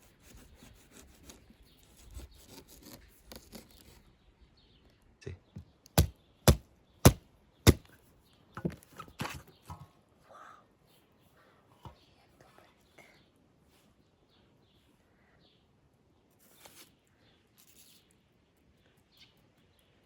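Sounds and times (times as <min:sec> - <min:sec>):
sharp chopping blows: 0:05.9 - 0:07.9
faint scraping and rustling: 0:16.2 - 0:19.0.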